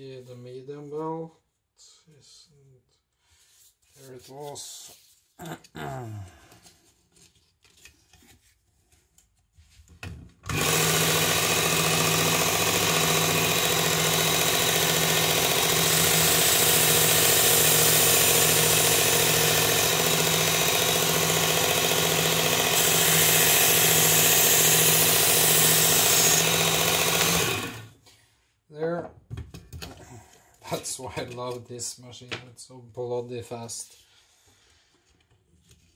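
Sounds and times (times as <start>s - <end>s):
belt sharpener grinding knife: 10.5s - 27.9s.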